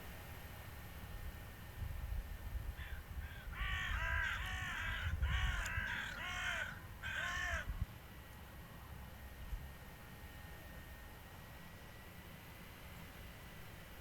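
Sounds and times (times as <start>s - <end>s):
crow cawing: 2.8s - 7.7s.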